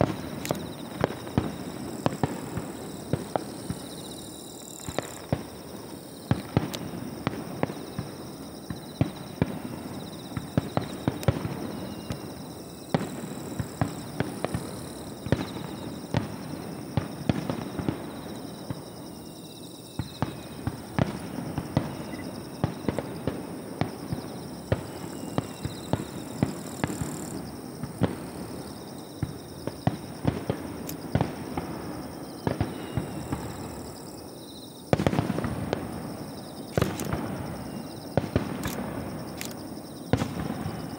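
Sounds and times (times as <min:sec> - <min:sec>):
fireworks bangs and crackles: 0:00.0 - 0:40.9
faint falling whistles: 0:21.8 - 0:23.0, 0:24.8 - 0:26.1, 0:32.4 - 0:33.7.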